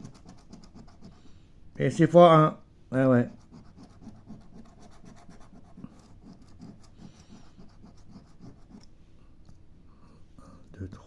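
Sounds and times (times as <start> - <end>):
lottery ticket being scratched: 0.0 - 1.2, 3.0 - 8.9.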